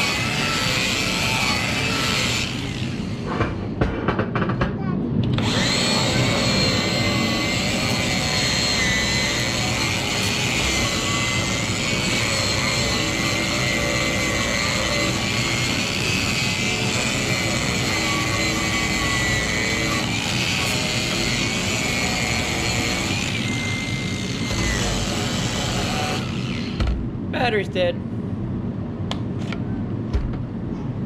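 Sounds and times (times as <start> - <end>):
machine whining and rumbling: 0.0 - 27.4.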